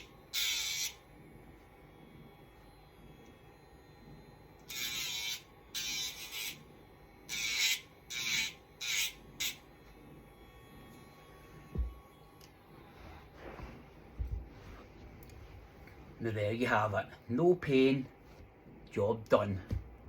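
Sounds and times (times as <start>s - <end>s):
pet nail grinder buzzing: 0.0s - 1.2s, 4.6s - 12.6s.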